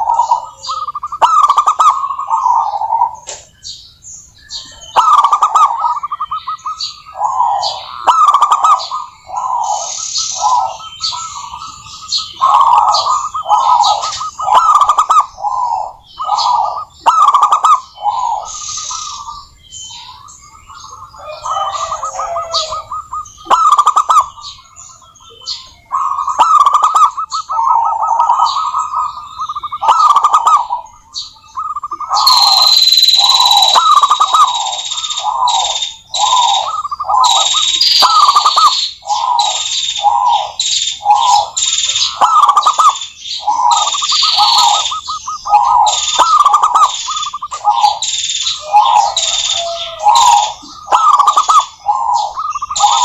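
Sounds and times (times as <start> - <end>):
doves cooing: 0.0 - 3.4, 4.5 - 53.0
hissing rasping whistle-like sound: 32.2 - 35.2.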